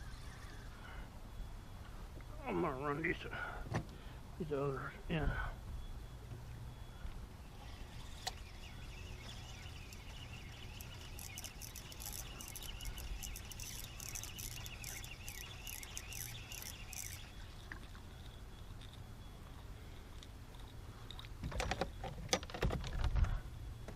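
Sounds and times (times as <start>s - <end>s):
fishing reel clicking whir: 0.0s - 1.0s, 7.4s - 21.3s.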